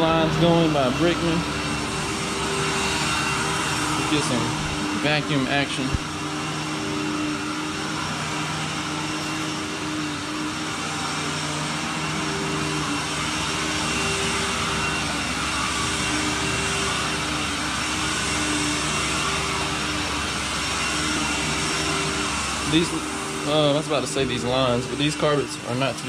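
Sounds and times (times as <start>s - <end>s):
motor hum: 0.0s - 26.0s
vacuum rushing air: 0.0s - 26.0s.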